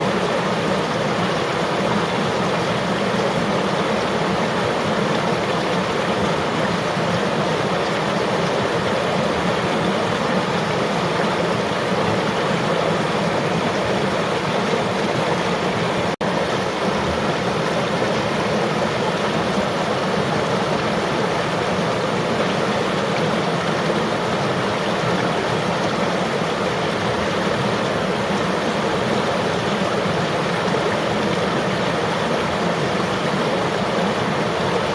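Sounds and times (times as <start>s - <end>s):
river water flowing: 0.0s - 34.9s.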